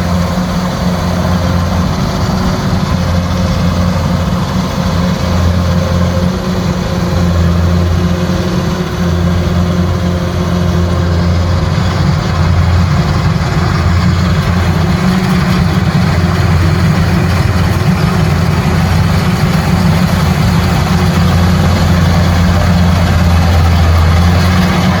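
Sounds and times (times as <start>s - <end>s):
diesel engine droning: 0.0s - 25.0s
machine clatter: 11.2s - 25.0s.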